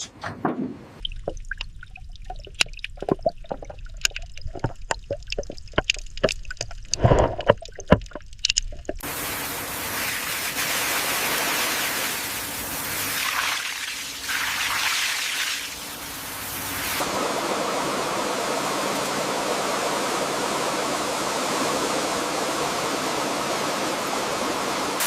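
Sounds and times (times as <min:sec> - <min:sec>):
water dripping and trickling: 0:01.0 - 0:11.0
small clicks and knocks: 0:02.5 - 0:09.0.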